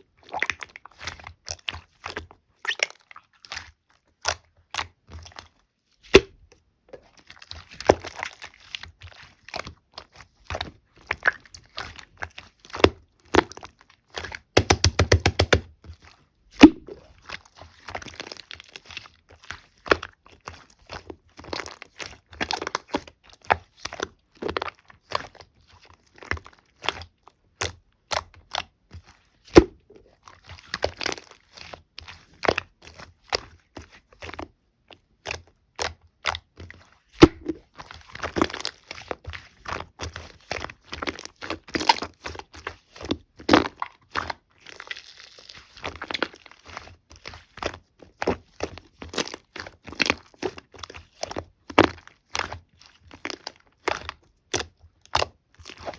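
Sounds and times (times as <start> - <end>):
slime squished by hand: 7.1 - 25.4, 35.2 - 55.9.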